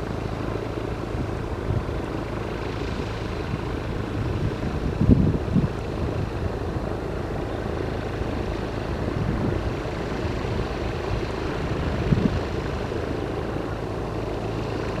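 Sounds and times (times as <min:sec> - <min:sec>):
propeller plane engine running: 0:00.0 - 0:15.0.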